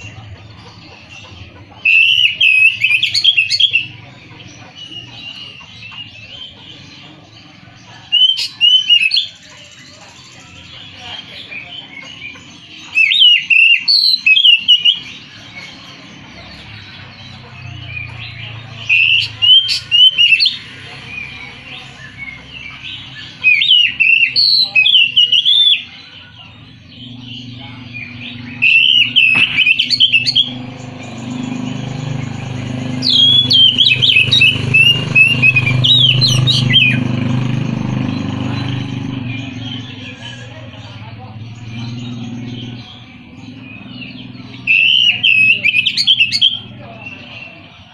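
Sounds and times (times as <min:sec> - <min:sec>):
songbird whistling: 0:01.4 - 0:04.0, 0:08.1 - 0:10.9, 0:11.5 - 0:17.0, 0:17.6 - 0:26.2, 0:26.8 - 0:37.1, 0:41.6 - 0:47.4.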